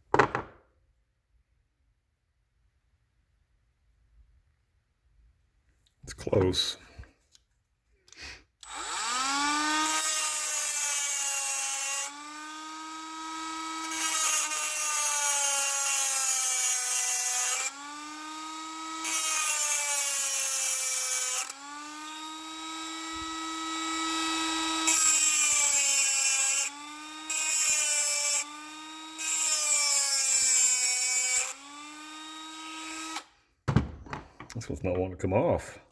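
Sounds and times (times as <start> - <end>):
rotary tool grinding metal: 8.6 - 33.3
rotary tool motor whine: 8.6 - 33.3.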